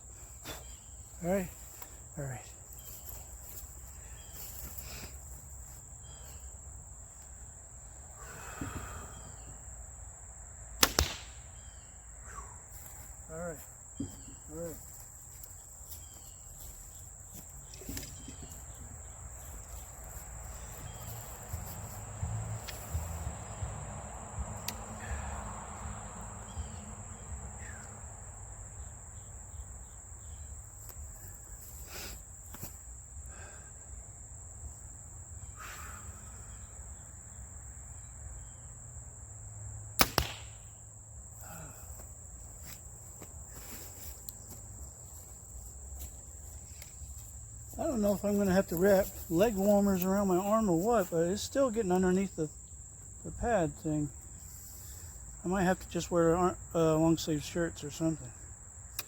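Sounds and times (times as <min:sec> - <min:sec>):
crickets chirring: 0:00.0 - 0:59.0
bowstring snapping: 0:10.8 - 0:11.4, 0:24.6 - 0:24.8, 0:40.0 - 0:40.6.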